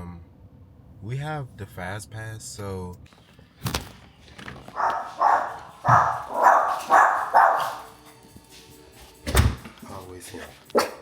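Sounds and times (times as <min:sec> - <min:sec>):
dog barking: 0:04.7 - 0:08.0, 0:10.7 - 0:11.0.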